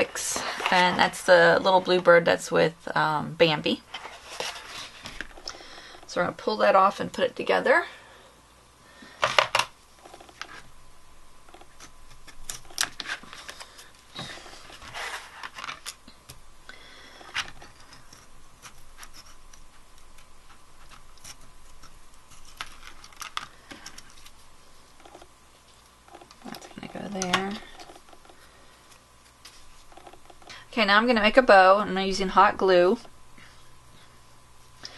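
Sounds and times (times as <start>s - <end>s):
light paper scraping: 3.9s - 5.4s, 11.6s - 16.0s
paper rustling: 3.9s - 5.4s, 11.6s - 16.0s, 17.3s - 25.8s.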